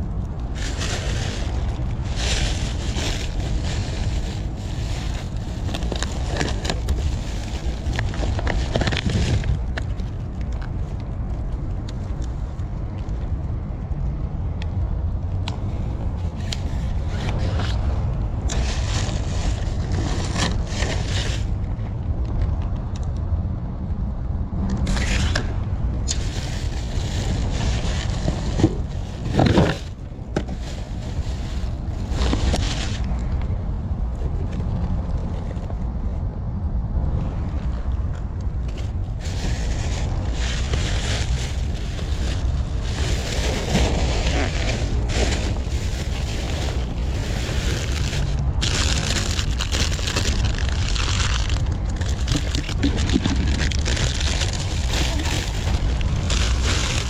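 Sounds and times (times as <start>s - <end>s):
bags rustling and crackling: 0.0s - 10.7s, 26.1s - 33.1s, 38.7s - 57.0s
steady low rumble: 0.0s - 57.0s.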